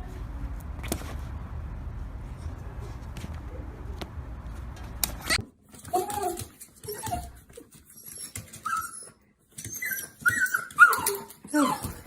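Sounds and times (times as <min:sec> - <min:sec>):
dog whimpering: 0:05.3 - 0:07.4, 0:08.0 - 0:12.0.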